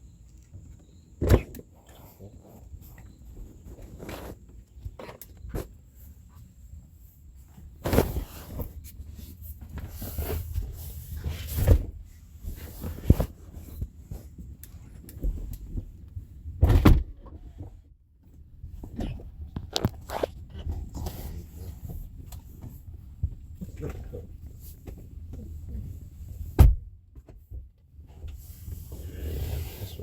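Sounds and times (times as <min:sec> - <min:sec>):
thuds and knocks: 0:16.6 - 0:17.7.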